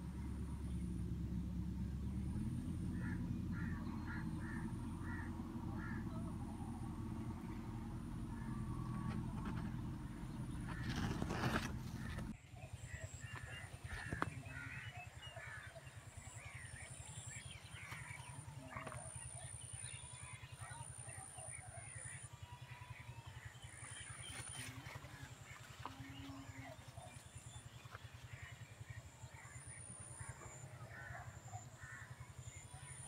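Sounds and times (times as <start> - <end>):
steady low rumble: 0.0 - 18.8
birds chirping: 0.0 - 33.0.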